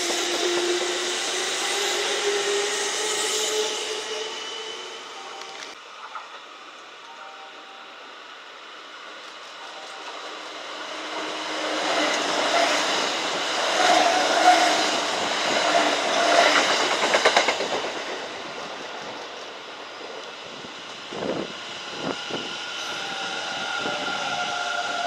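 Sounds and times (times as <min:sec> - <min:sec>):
electric train passing: 0:00.0 - 0:25.0
train wheels clacking over joints: 0:13.8 - 0:20.3.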